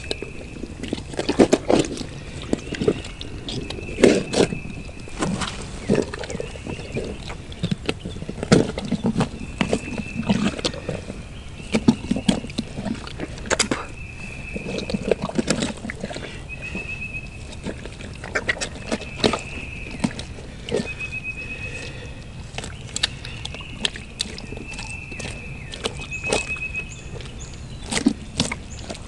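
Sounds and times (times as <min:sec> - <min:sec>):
carcass dragging through brush: 0:03.8 - 0:07.2.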